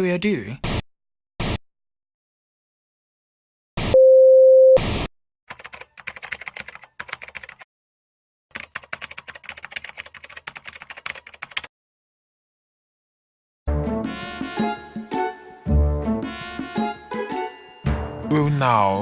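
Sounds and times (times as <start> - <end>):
keyboard typing: 5.5 - 7.7, 8.5 - 11.7.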